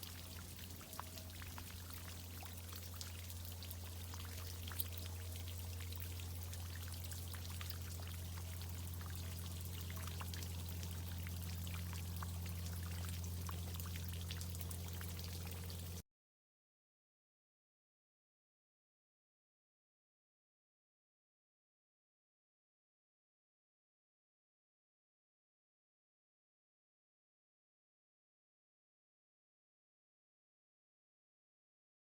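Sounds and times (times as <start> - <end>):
low hum: 0.0 - 16.0
water drips pattering: 0.0 - 16.0
water pouring and splashing: 0.0 - 16.0.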